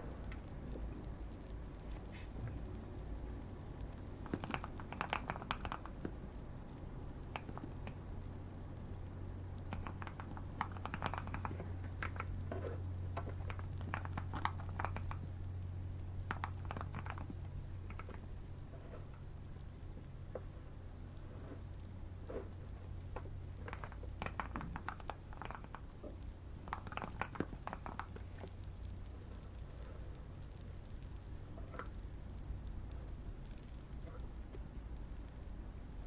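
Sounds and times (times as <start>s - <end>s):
steady low hum: 0.0s - 36.0s
mechanical keyboard typing: 4.2s - 6.4s.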